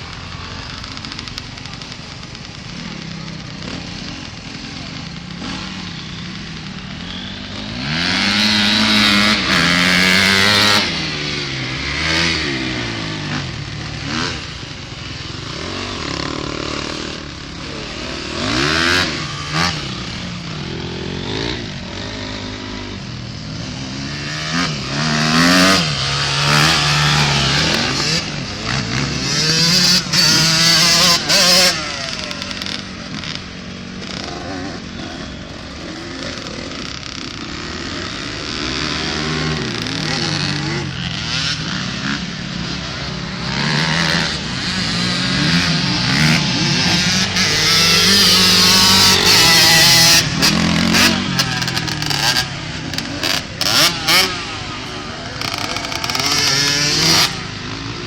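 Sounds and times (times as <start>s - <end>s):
dirt bikes revving and passing: 0.0s - 58.0s.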